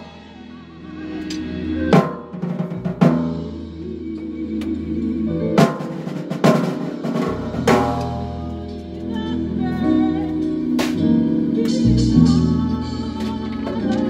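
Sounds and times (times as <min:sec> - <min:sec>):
drum kit playing: 0:00.0 - 0:04.6, 0:05.3 - 0:14.0
bass guitar notes: 0:00.0 - 0:14.0
held chords: 0:00.0 - 0:14.0.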